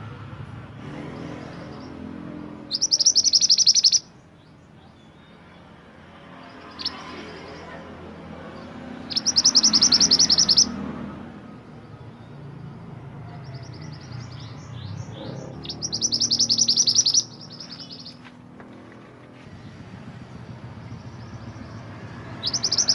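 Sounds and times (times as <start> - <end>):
songbird chirping: 0.8 - 22.9.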